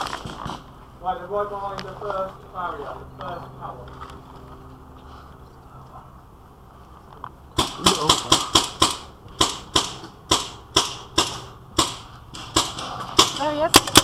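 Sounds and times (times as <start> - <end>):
paintball marker shots: 7.6 - 14.0.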